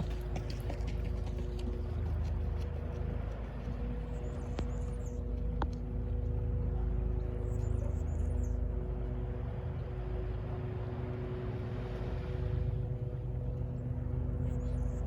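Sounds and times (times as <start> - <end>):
city traffic rumble: 0.0 - 11.7.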